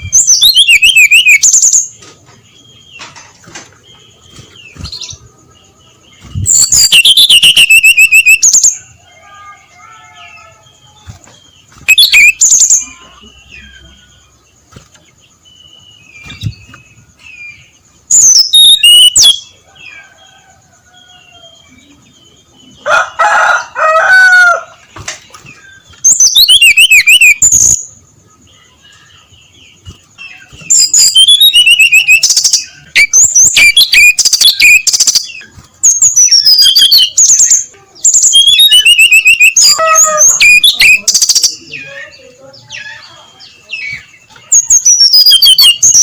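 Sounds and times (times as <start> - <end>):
bird singing high twisting notes: 0.0 - 2.0, 4.1 - 8.8, 11.1 - 14.9, 18.0 - 19.5, 25.5 - 28.0, 29.7 - 41.7, 44.5 - 46.0.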